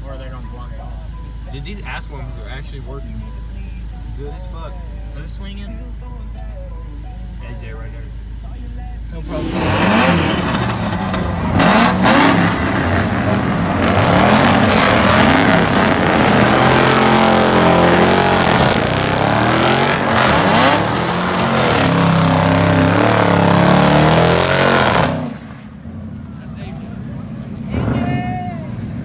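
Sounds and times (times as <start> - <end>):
car engine revving hard: 9.2 - 26.0, 27.2 - 29.0.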